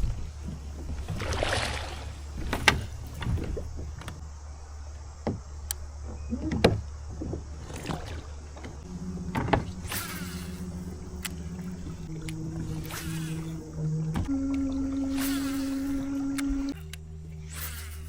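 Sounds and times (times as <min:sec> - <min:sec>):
electric outboard motor whine: 0:00.0 - 0:18.0.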